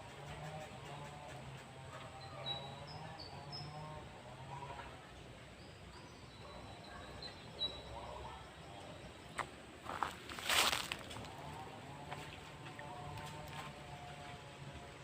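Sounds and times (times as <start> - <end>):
distant voices: 0.0 - 15.0
bird chirping: 0.1 - 4.1, 5.4 - 10.2.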